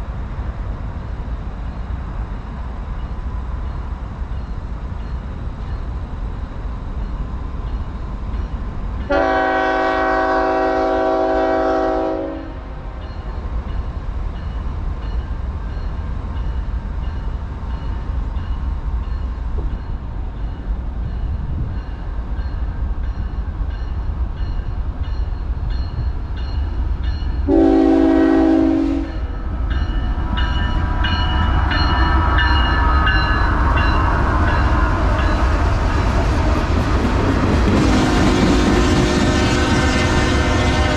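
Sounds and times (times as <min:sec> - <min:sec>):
train rail noise: 0:00.0 - 0:40.9
locomotive air horn: 0:09.1 - 0:12.7, 0:27.5 - 0:29.3, 0:37.8 - 0:40.9.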